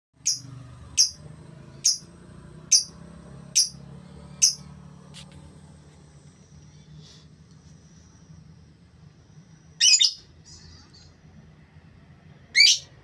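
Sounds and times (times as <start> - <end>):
songbird chirping: 0.2 - 4.8
steady low hum: 0.2 - 13.0.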